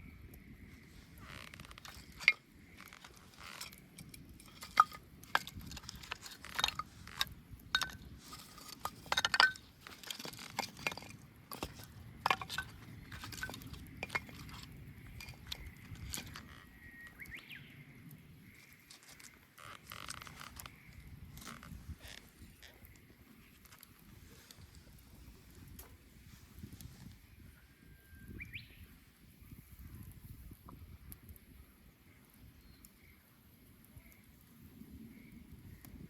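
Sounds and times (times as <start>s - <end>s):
bonfire crackling and popping: 0.8s - 9.0s.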